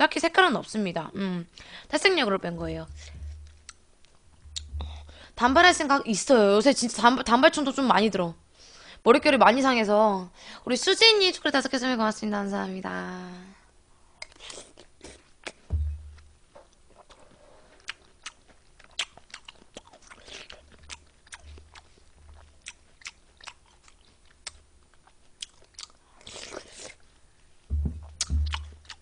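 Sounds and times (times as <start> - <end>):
dull bumps: 2.6 - 3.7, 4.4 - 5.9, 15.7 - 16.4, 27.7 - 29.0
person chewing and crunching: 16.9 - 27.0, 28.0 - 29.0.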